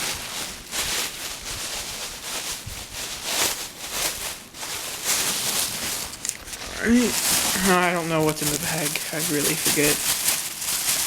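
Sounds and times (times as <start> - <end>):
bag and packaging rustling: 0.0 - 11.0.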